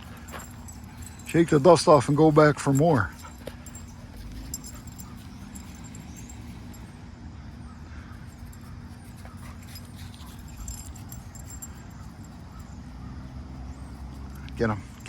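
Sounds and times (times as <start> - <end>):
dogs scuffling and pawing: 8.3 - 12.7.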